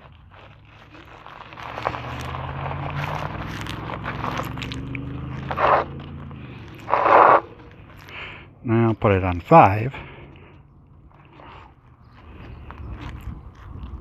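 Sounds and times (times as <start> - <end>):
tyre and wind noise: 0.0 - 10.3, 11.0 - 14.0
electric bike motor hum: 1.0 - 8.6.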